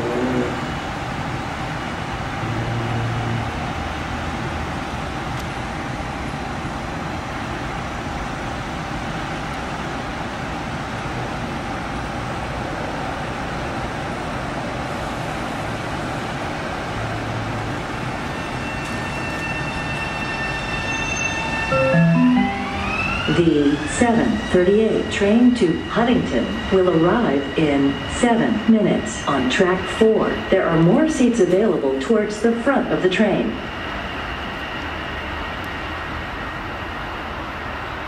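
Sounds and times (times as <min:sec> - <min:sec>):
electric train rumble and hum: 0:00.0 - 0:38.0.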